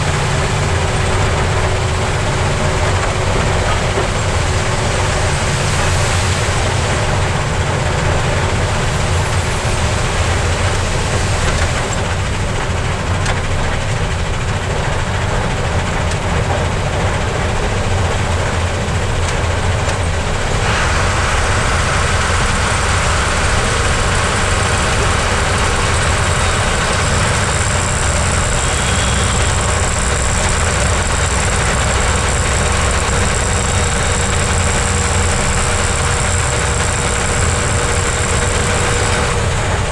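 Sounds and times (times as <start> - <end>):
truck diesel engine rumbling: 0.0 - 39.9
steady hiss: 20.5 - 39.4.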